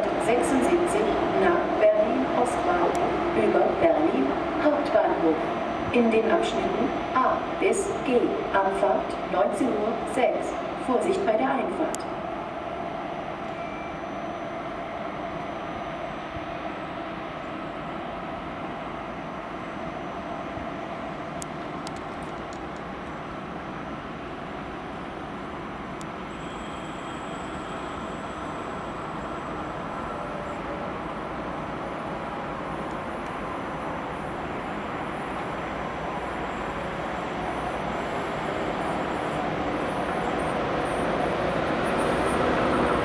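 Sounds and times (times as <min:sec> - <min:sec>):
train wheels rumbling on rails: 0:19.8 - 0:43.0.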